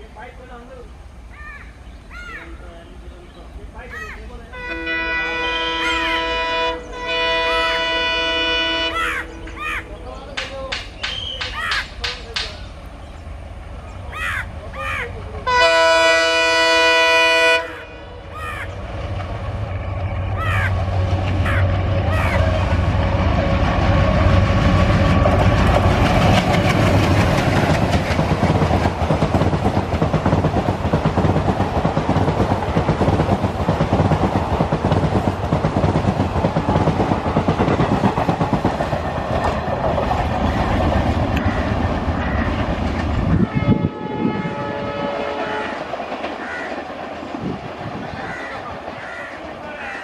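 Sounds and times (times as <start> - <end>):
diesel locomotive engine drone: 0.0 - 50.0
chord of steady tones: 4.5 - 10.3
train wheels clattering over rails: 10.2 - 13.2, 18.9 - 43.5, 45.0 - 50.0.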